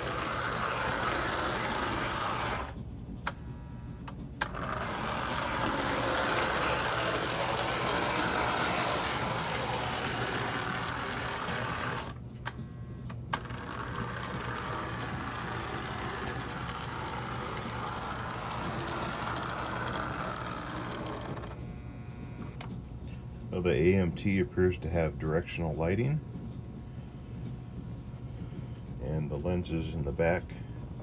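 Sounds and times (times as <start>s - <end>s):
model train motor whirring: 0.0s - 2.8s, 4.4s - 12.2s, 13.3s - 21.6s.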